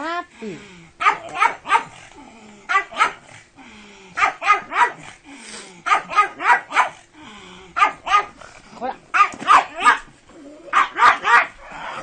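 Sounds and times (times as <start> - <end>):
small dog yapping: 1.0 - 2.0, 2.7 - 3.2, 4.2 - 5.0, 5.9 - 7.0, 7.8 - 8.4, 9.1 - 10.1, 10.7 - 11.7.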